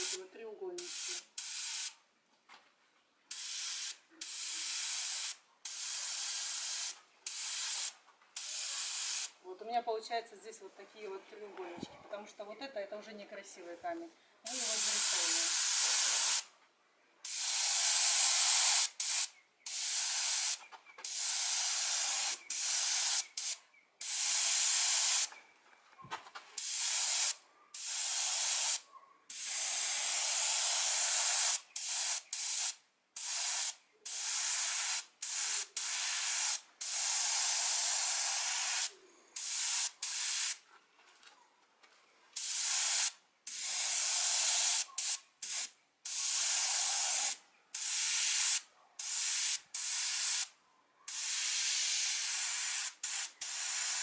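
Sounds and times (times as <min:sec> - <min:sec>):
paint spray gun hissing: 0:00.0 - 0:00.2, 0:00.8 - 0:02.0, 0:03.3 - 0:09.3, 0:14.5 - 0:16.5, 0:17.2 - 0:25.3, 0:26.6 - 0:40.6, 0:42.4 - 0:50.5, 0:51.1 - 0:54.0.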